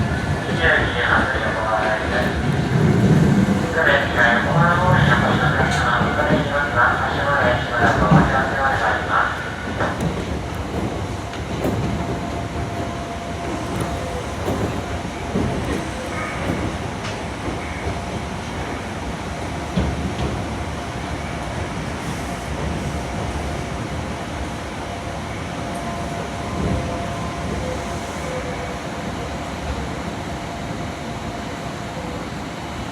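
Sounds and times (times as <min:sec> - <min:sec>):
electric train rail rumble: 0:00.0 - 0:32.9
train wheel thumps: 0:09.7 - 0:18.2.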